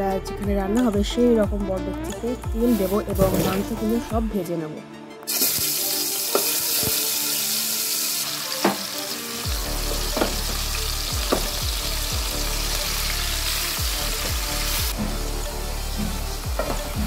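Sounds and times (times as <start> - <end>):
chicken sizzling in hot oil: 5.3 - 17.0.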